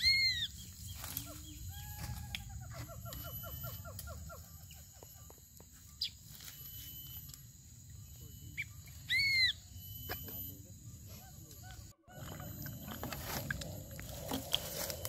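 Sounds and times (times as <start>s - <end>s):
birds calling: 0.0s - 7.2s, 7.8s - 15.0s
thin high whine: 3.0s - 15.0s.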